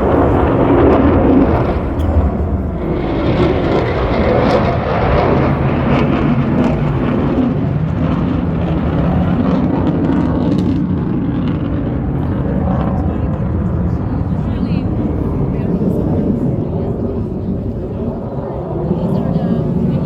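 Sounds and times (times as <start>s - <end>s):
aircraft flying past: 0.0s - 20.0s.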